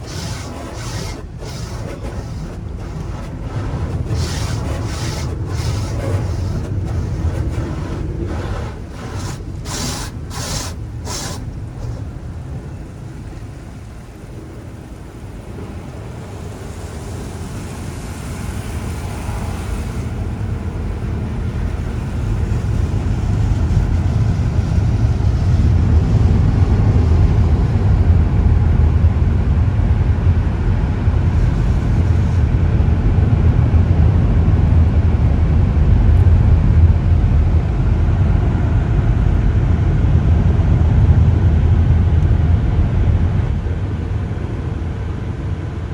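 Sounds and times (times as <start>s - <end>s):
brief hissing: 0.0s - 12.1s
car wash machinery rumbling: 0.0s - 45.9s.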